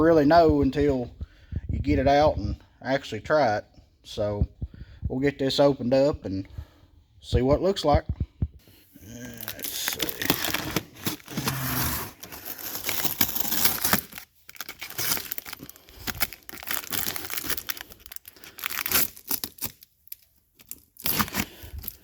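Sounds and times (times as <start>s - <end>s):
cardboard and tape tearing: 9.1s - 22.0s.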